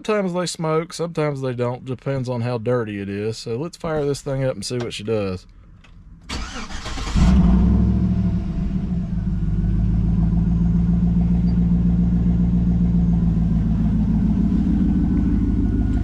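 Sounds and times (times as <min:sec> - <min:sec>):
pickup truck engine idling: 0:06.3 - 0:16.0.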